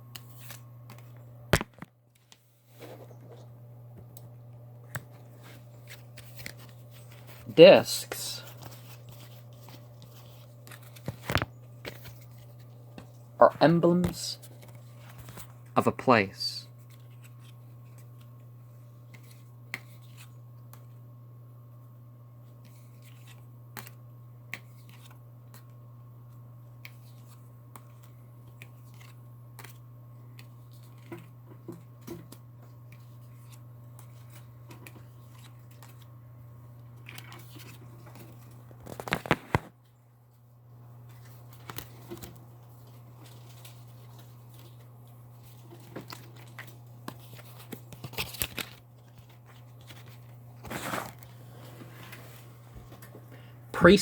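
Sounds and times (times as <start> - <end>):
cards clicking and rustling: 0.1 - 3.4, 4.2 - 16.0, 16.8 - 18.4, 19.1 - 21.0, 22.6 - 25.8, 26.8 - 36.1, 36.8 - 39.7, 41.0 - 51.3.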